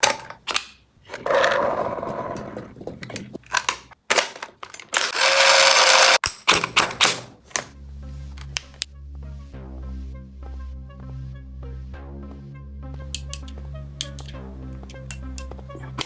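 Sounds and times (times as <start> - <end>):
blaster handling clicks: 3.5 - 7.7, 13.2 - 16.0
toy blaster firing whirring rattle: 4.8 - 6.2
music: 7.0 - 16.0.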